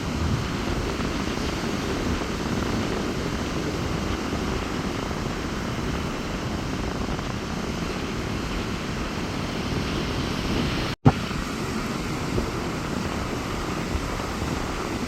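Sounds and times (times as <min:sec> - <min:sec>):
wind buffeting microphone: 0:00.0 - 0:15.0
surf breaking on beach: 0:07.7 - 0:15.0.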